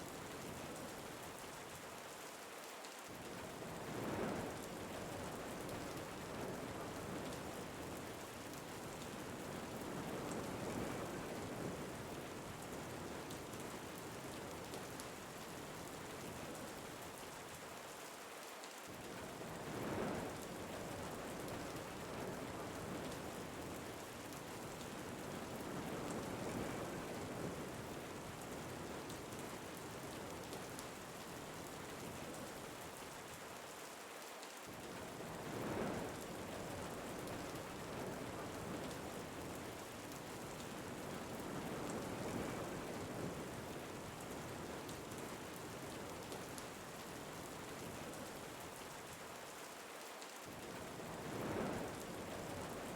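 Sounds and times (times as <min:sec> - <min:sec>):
steady rain falling: 0:00.0 - 0:52.9
wind gusts: 0:34.9 - 0:39.8, 0:40.4 - 0:44.8, 0:50.7 - 0:52.9.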